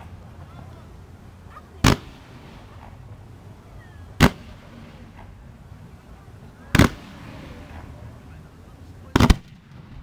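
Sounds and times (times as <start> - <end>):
fireworks bangs: 1.8 - 3.3, 4.2 - 5.6, 6.7 - 8.2, 9.0 - 10.0.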